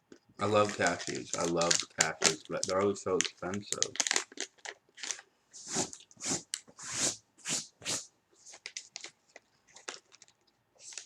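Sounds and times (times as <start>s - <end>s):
person chewing nuts crunching: 9.4s - 10.4s.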